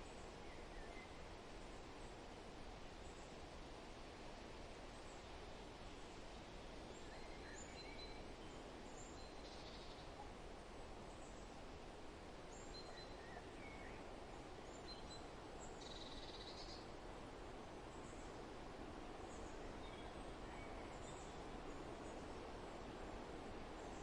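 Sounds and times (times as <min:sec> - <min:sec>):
songbird chirps: 0:00.0 - 0:02.3, 0:06.0 - 0:17.1, 0:17.8 - 0:24.0
faint wind: 0:00.0 - 0:24.0.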